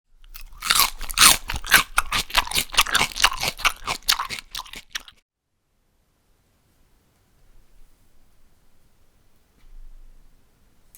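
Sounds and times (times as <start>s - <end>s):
crispy food crunching: 0.2s - 5.2s.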